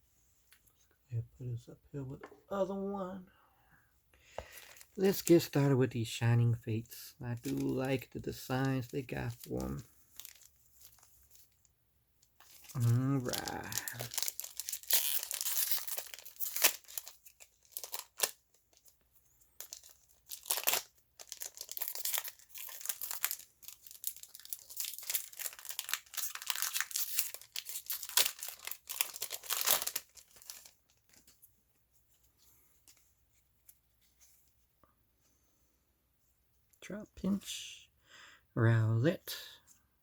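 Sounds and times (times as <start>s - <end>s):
foil wrapper tearing and crinkling: 7.4s - 11.1s, 12.4s - 18.9s, 19.6s - 31.3s.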